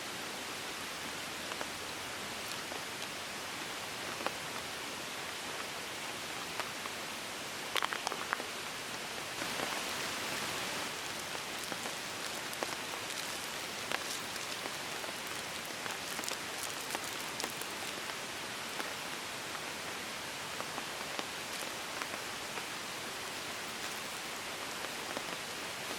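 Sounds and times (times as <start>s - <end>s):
steady rain hiss: 0.0s - 25.9s
raindrop ticks: 10.8s - 18.2s.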